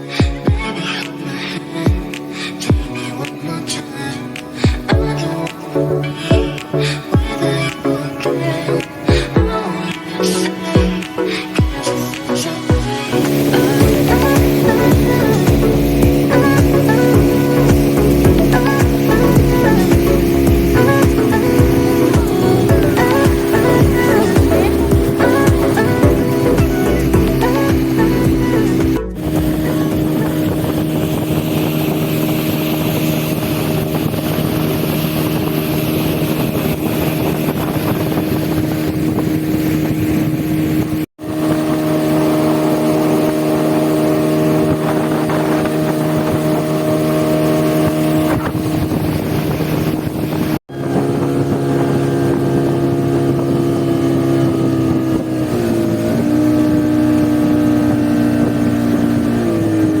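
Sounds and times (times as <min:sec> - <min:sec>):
water hiss: 0:00.0 - 0:38.9
motorboat engine running: 0:00.0 - 1:00.0
wind: 0:00.0 - 1:00.0.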